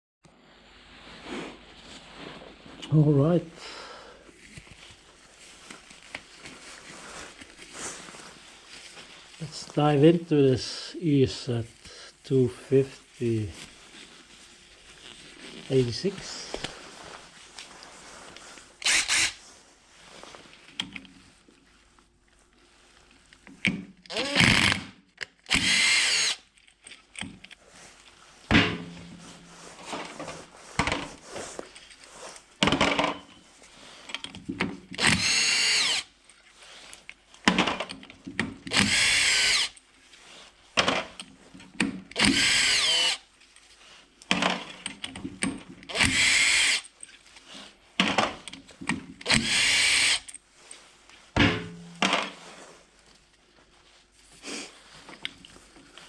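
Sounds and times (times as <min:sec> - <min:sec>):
power drill whirring: 0:18.8 - 0:19.4, 0:24.1 - 0:26.5, 0:35.0 - 0:36.2, 0:38.7 - 0:39.8, 0:42.1 - 0:43.3, 0:45.9 - 0:46.9, 0:49.2 - 0:50.3.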